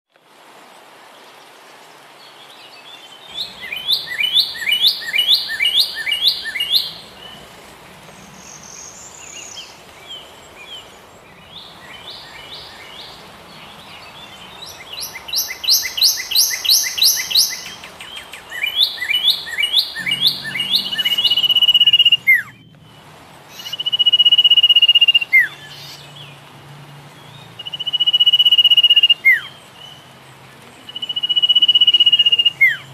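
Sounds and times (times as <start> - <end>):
birds chirping rapidly: 3.2 - 32.9
bird whistle with downward slur: 3.4 - 7.0, 15.0 - 17.9, 18.5 - 22.6, 23.6 - 25.5.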